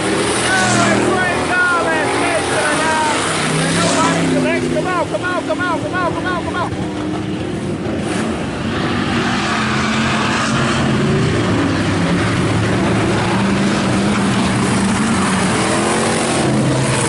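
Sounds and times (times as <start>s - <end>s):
race car engines passing: 0.0s - 17.0s.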